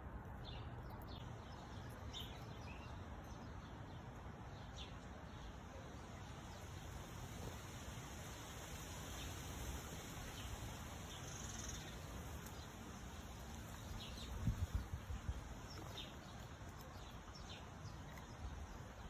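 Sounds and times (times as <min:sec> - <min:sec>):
steady hiss: 0:06.2 - 0:15.7.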